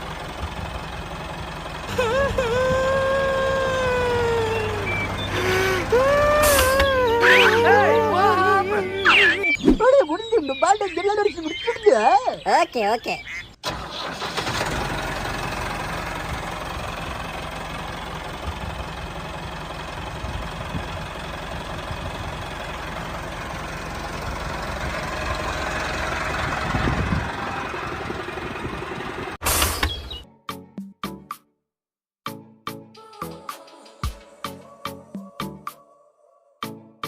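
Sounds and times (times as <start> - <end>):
tractor engine running: 0.0 - 10.9, 13.2 - 30.1.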